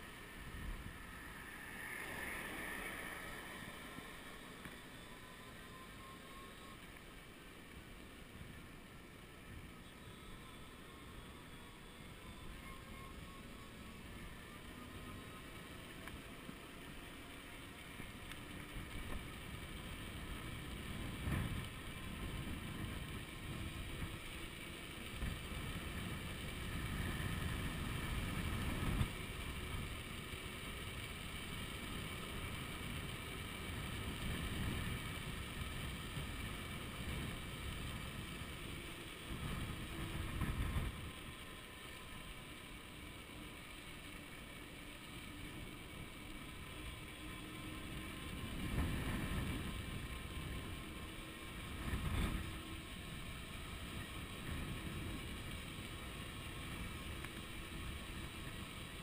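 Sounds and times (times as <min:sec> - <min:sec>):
faint steady whine: 0:00.0 - 0:59.0
wind buffeting microphone: 0:18.7 - 0:24.3, 0:33.7 - 0:41.2, 0:47.4 - 0:58.1.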